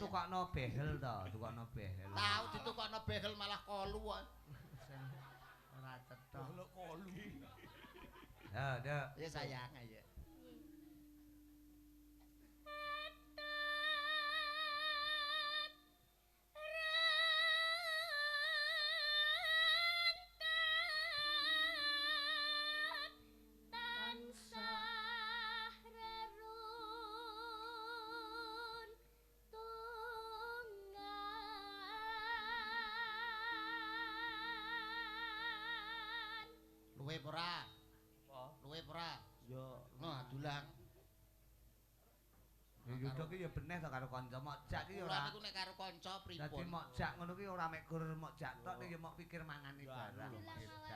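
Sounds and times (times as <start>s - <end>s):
low sustained accompaniment notes: 9.0s - 40.9s
woman singing with vibrato: 12.4s - 15.9s, 16.5s - 36.8s.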